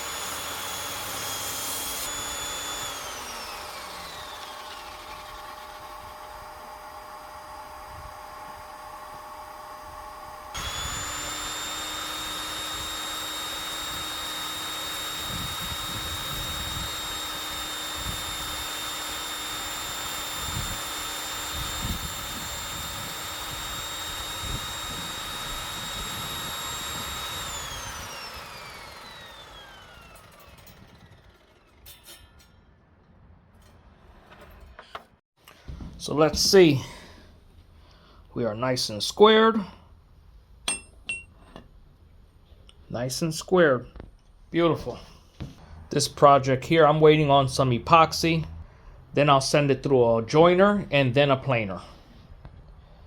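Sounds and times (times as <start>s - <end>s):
table saw whining: 0.0s - 32.5s
saw blade spinning down: 0.0s - 32.6s.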